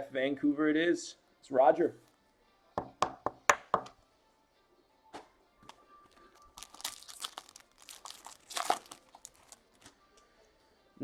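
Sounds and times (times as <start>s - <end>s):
foil wrappers crinkling and tearing: 6.3s - 9.9s.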